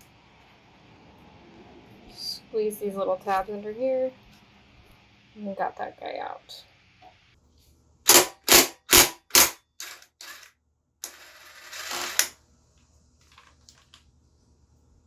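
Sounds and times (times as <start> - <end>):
sharp click: 8.1 - 10.0
scraping and rattling parts: 8.1 - 12.3.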